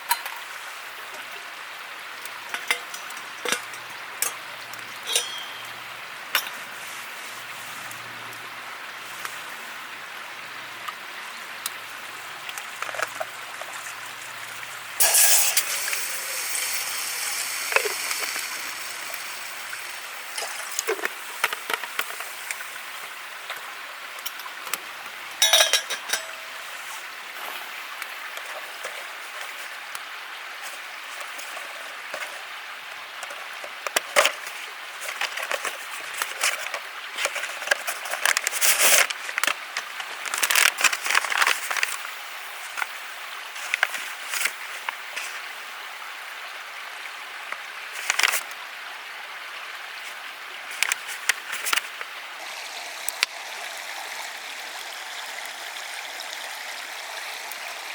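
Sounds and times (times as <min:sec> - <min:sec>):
flowing water rushing: 0:00.0 - 0:57.9
camp gear clinking and knocking: 0:05.0 - 0:05.8, 0:25.4 - 0:26.6.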